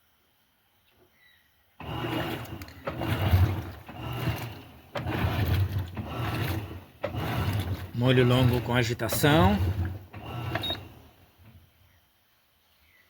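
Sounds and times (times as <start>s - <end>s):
washing machine humming and churning: 1.8s - 11.6s.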